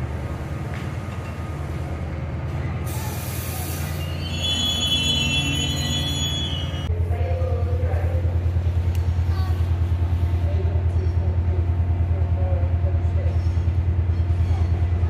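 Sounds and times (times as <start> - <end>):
train low rumble: 0.0 - 15.0
wheel squeal on rails: 2.9 - 6.9.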